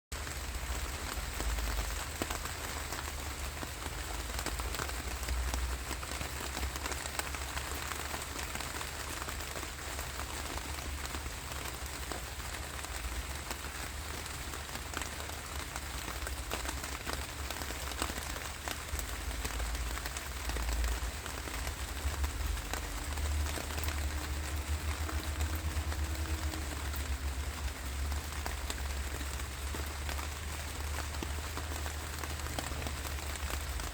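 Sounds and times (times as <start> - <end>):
rain falling: 0.1 - 33.9.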